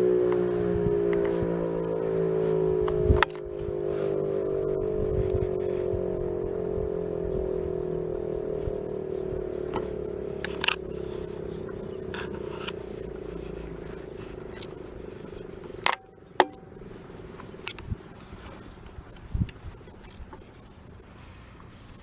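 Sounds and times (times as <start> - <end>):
warning siren winding down: 0.0 - 16.0
faint insect chirping: 0.0 - 22.0.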